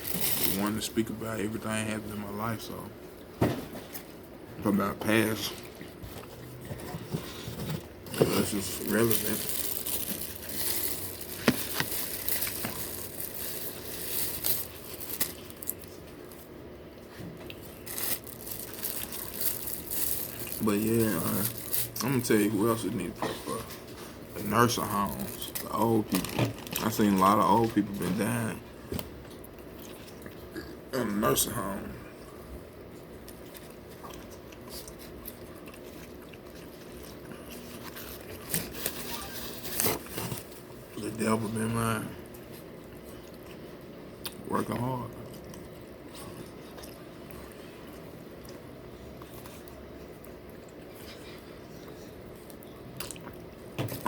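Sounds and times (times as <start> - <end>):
person chewing food: 5.6 - 22.0, 32.2 - 39.3, 42.3 - 44.4, 45.1 - 54.0.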